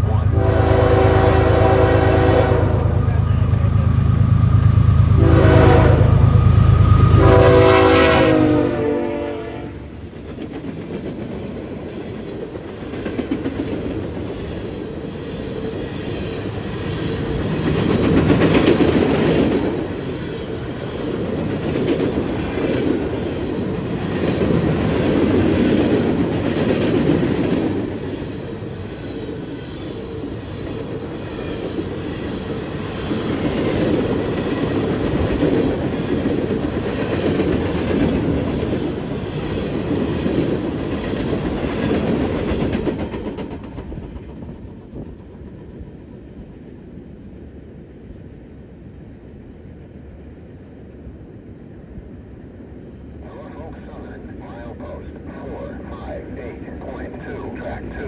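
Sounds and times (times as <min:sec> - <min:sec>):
diesel engine rumble: 0:00.0 - 0:07.5
locomotive horn: 0:00.0 - 0:10.0
train wheels clattering: 0:10.1 - 0:46.4.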